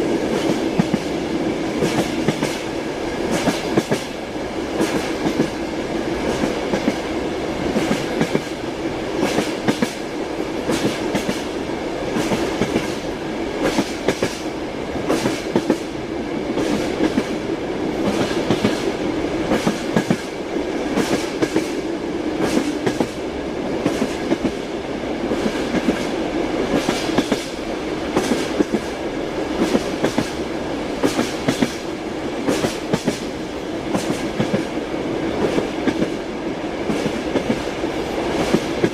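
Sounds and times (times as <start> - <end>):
train carriage rumble: 0.0 - 38.9
train wheels clacking over rail joints: 1.8 - 2.7, 3.3 - 4.2, 4.8 - 5.6, 7.7 - 8.6, 9.2 - 10.0, 10.6 - 11.5, 12.1 - 15.9, 18.0 - 18.9, 19.5 - 23.2, 25.3 - 29.0, 29.6 - 30.4, 31.0 - 34.8, 36.8 - 37.7.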